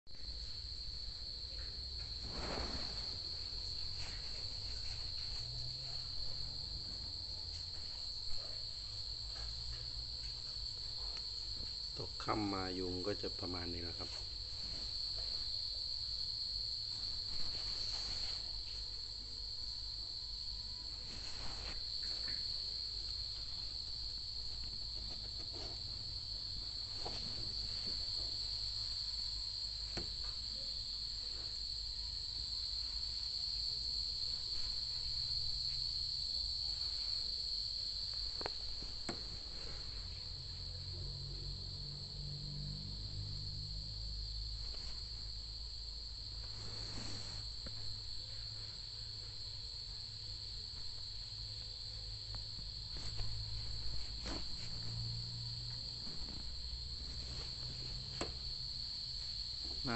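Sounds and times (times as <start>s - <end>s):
crickets trilling: 0.1s - 59.9s.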